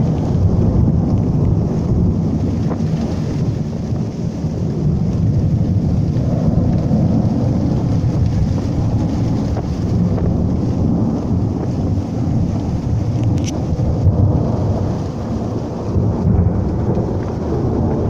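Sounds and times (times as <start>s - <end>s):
low rumble of thunder: 0.0s - 18.0s
wind buffeting microphone: 0.0s - 18.0s.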